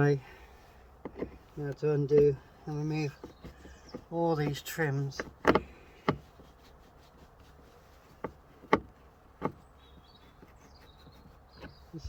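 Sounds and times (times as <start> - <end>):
plastic trim clicks and knocks: 3.1 - 6.3, 8.2 - 9.6.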